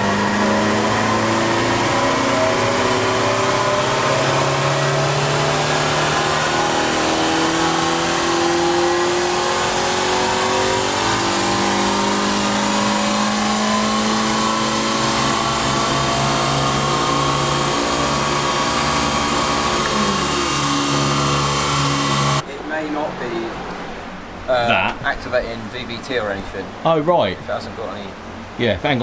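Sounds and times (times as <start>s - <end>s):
car engine revving on dyno: 0.0s - 22.4s.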